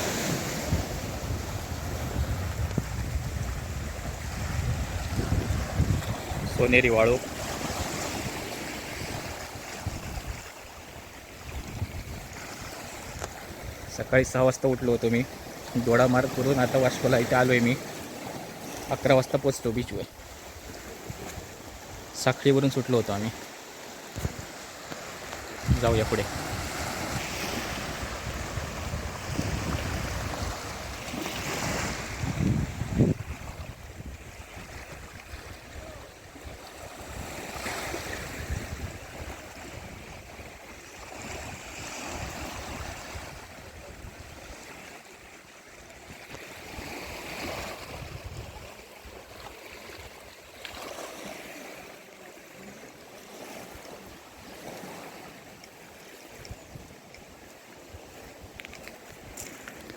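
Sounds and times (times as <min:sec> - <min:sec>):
wind buffeting microphone: 0:00.0 - 0:13.9, 0:25.2 - 0:40.5, 0:46.6 - 0:49.4
sea waves washing ashore: 0:00.0 - 0:59.9.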